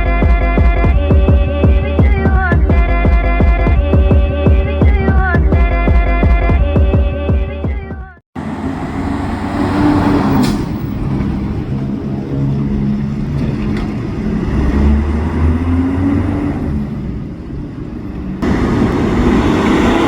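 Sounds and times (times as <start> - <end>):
heavy diesel engine running: 8.4 - 20.0.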